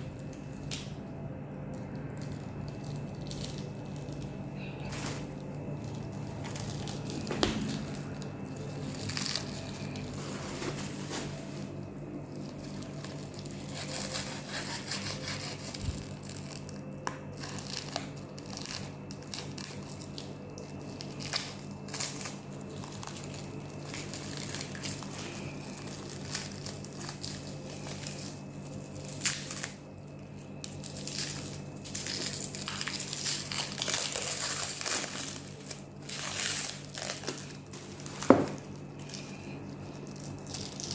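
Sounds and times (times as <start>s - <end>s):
packaging wrap crinkling: 1.7s - 40.9s.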